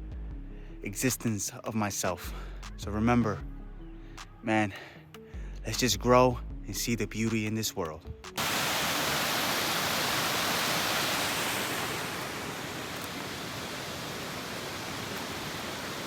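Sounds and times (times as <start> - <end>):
steady rushing noise: 8.4 - 16.0.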